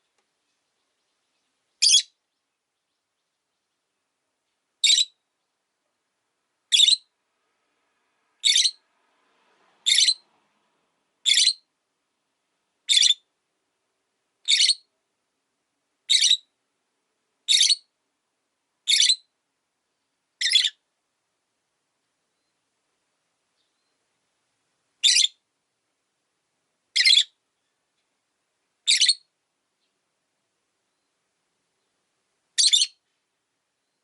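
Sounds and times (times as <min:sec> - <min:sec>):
bird short high-pitched calls: 0:01.8 - 0:02.2, 0:04.8 - 0:05.2, 0:06.7 - 0:07.1, 0:08.4 - 0:08.8, 0:09.9 - 0:10.2, 0:11.3 - 0:11.6, 0:12.9 - 0:13.2, 0:14.5 - 0:14.9, 0:16.1 - 0:16.5, 0:17.5 - 0:17.8, 0:18.9 - 0:19.2, 0:20.4 - 0:20.8, 0:25.0 - 0:25.4, 0:27.0 - 0:27.4, 0:28.9 - 0:29.3, 0:32.6 - 0:33.0.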